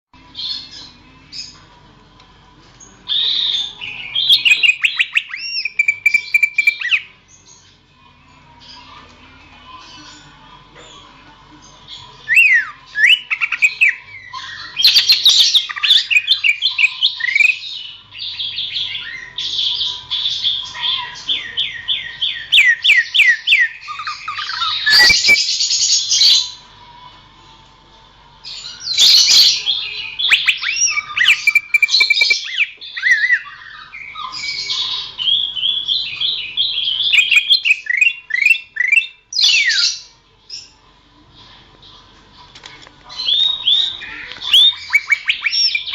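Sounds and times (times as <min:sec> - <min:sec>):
bird singing whistled notes: 0:03.1 - 0:07.1, 0:12.3 - 0:19.5, 0:21.3 - 0:26.5, 0:28.6 - 0:34.6, 0:35.2 - 0:39.8, 0:43.2 - 0:45.9
bird harsh chattering: 0:03.2 - 0:07.1, 0:18.4 - 0:26.5, 0:28.9 - 0:40.0, 0:43.2 - 0:45.9.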